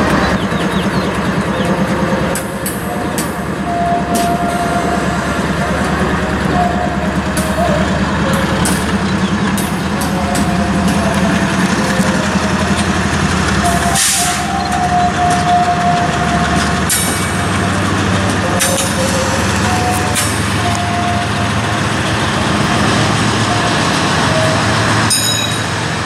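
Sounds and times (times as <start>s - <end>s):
train wheel clicks: 0.0s - 23.4s
high wheel squeal: 0.0s - 25.9s
freight train rumbling: 0.0s - 26.0s.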